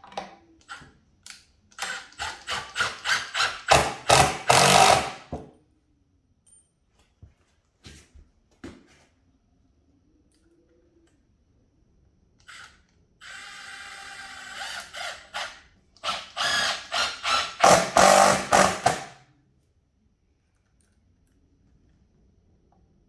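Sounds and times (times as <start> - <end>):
power drill whining: 1.8 - 5.3, 12.5 - 19.2.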